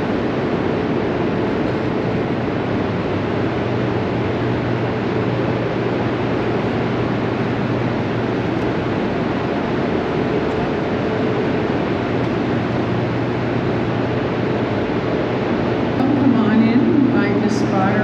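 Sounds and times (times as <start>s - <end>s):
low electrical hum: 0.0s - 18.0s
machinery rushing noise: 16.0s - 18.0s.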